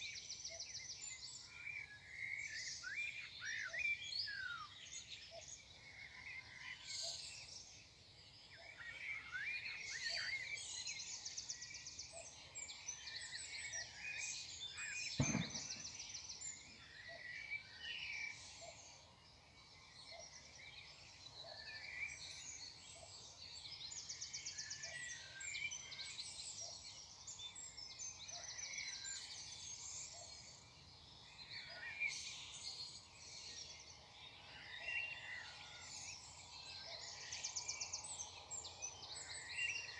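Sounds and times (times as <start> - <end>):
songbirds singing: 0.0 - 39.9
sharp knock: 15.2 - 15.9.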